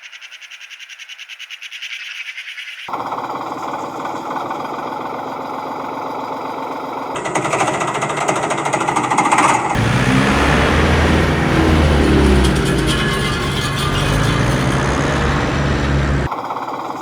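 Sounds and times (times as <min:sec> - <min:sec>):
rapid mechanical rattling: 0:02.9 - 0:16.3
low hum: 0:09.8 - 0:16.3.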